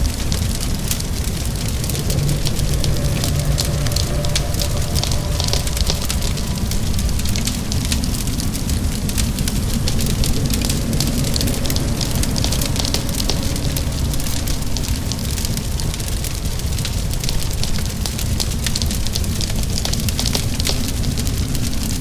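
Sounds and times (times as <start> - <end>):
low rumble: 0.0 - 22.0
rain hissing: 0.0 - 22.0
wood fire crackling: 0.0 - 22.0.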